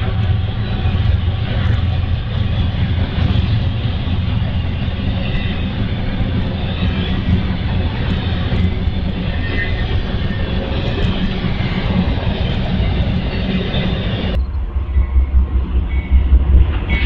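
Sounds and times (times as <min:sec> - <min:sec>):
freight train wheels rumbling on rail: 0:00.0 - 0:17.0.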